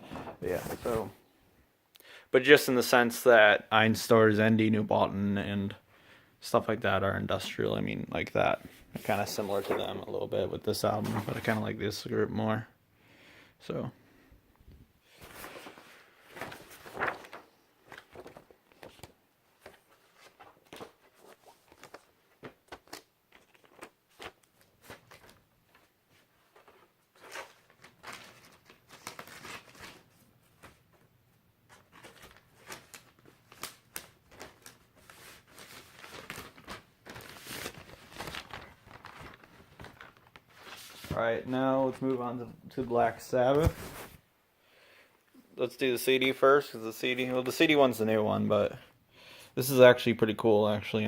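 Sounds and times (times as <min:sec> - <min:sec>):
plastic and paper crinkling: 0:00.1 - 0:01.2, 0:08.4 - 0:10.2, 0:10.8 - 0:11.8, 0:15.1 - 0:31.0, 0:31.7 - 0:42.3, 0:42.9 - 0:44.2.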